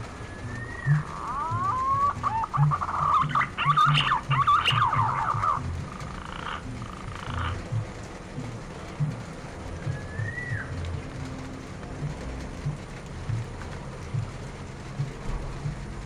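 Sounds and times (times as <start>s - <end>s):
pigeon whistling calls: 0.2s - 6.0s, 9.8s - 10.8s.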